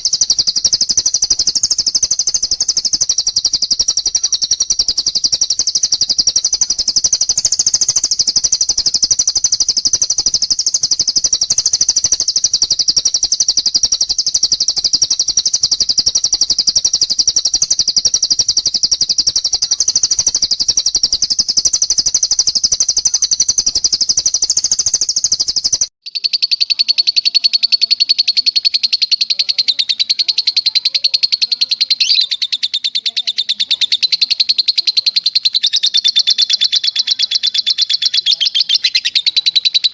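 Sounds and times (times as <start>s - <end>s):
songbird trilling: 0.0s - 39.9s.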